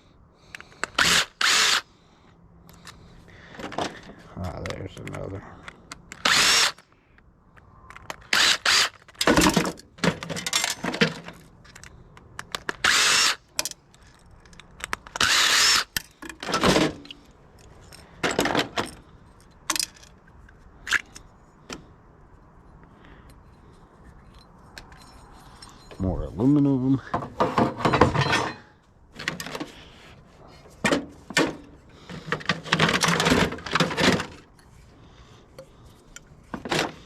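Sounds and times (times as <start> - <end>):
power drill whining: 0.7 - 1.9, 6.2 - 6.8, 8.3 - 9.0, 12.8 - 13.4, 15.2 - 16.0.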